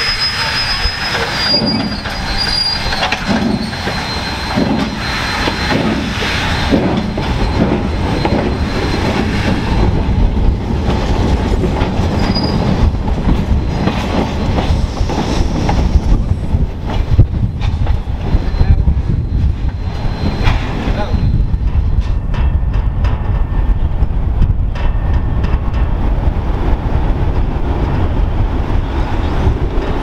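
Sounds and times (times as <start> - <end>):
high wheel squeal: 0.0 - 10.2, 12.0 - 15.6, 18.3 - 22.0
train rumbling on rails: 0.0 - 30.0.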